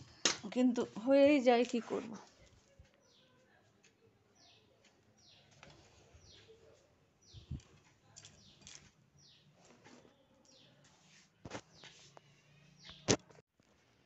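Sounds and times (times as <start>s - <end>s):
faint bird chirps: 4.3s - 10.9s, 11.7s - 13.2s.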